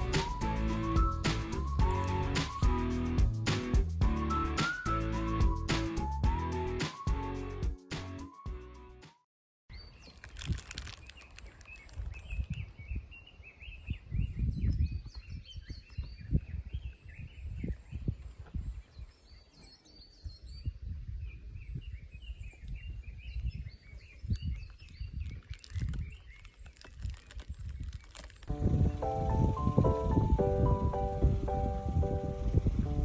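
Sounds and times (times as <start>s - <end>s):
wind buffeting microphone: 11.7s - 26.4s, 27.5s - 33.0s.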